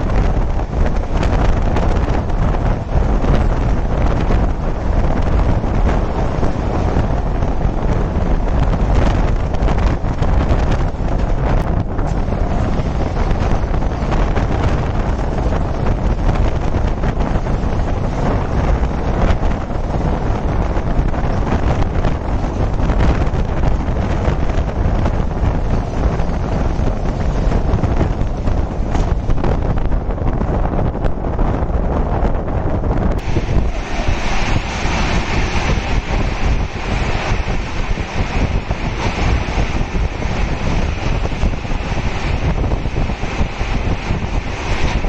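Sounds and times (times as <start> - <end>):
train wheels rumbling on rails: 0.0 - 45.0
wind buffeting microphone: 0.0 - 45.0.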